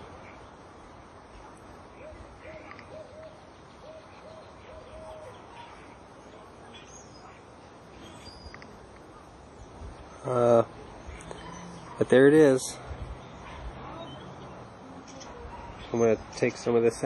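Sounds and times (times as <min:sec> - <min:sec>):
faint outdoor background noise: 0:00.0 - 0:17.0
bird hooting: 0:02.0 - 0:07.4.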